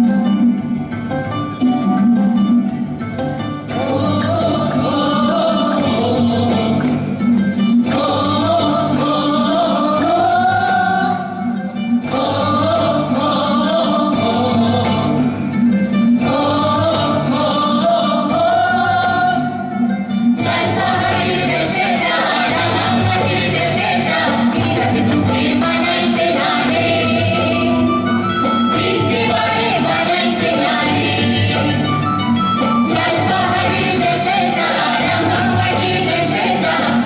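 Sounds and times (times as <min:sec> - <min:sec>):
instrumental accompaniment: 0:00.0 - 0:37.0
person singing folk song: 0:03.8 - 0:19.8.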